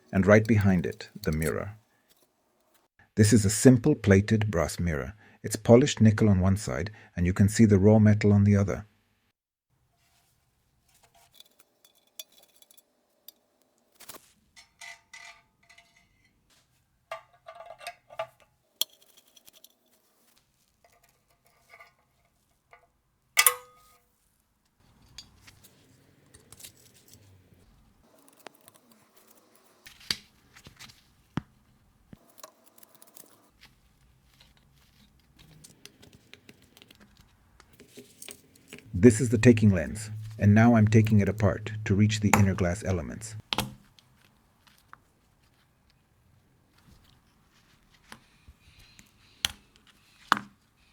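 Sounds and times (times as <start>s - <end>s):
metal tools clinking: 0.0s - 2.3s, 11.0s - 16.4s, 17.1s - 22.4s, 23.4s - 24.0s, 24.9s - 27.3s, 37.8s - 43.4s
soft rubbing and handling noise: 0.0s - 2.9s, 9.8s - 23.0s, 23.8s - 50.9s.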